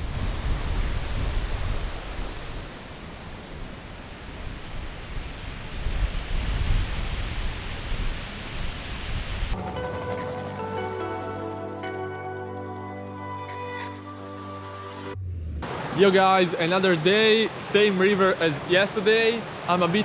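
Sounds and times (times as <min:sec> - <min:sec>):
wind buffeting microphone: 0:00.0 - 0:09.6
music: 0:09.6 - 0:15.2
rushing river water: 0:15.6 - 0:20.0.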